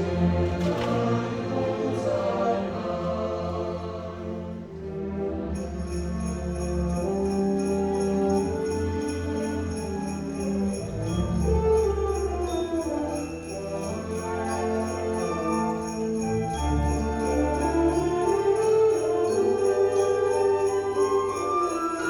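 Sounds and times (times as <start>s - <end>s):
sleigh bells shaken: 5.5s - 22.0s.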